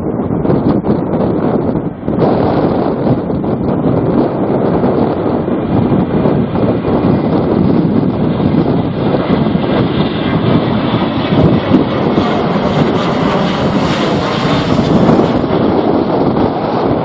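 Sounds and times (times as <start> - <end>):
wind buffeting microphone: 0.0 - 17.0
airliner engines passing: 6.4 - 17.0.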